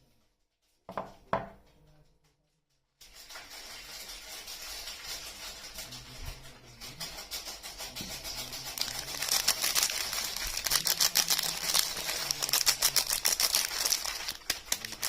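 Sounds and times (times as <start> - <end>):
soap wrapping crinkling: 8.7 - 15.0.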